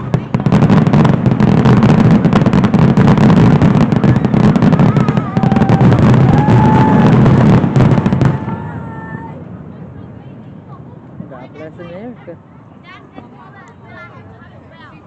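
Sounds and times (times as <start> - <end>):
fireworks whistling: 0.0 - 9.3
fireworks bangs and crackles: 0.0 - 11.4.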